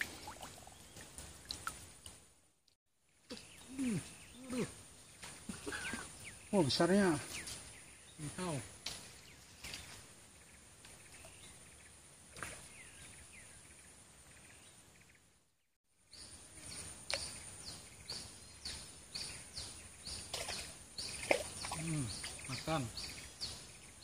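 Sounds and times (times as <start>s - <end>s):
bird chirping: 16.1s - 24.0s.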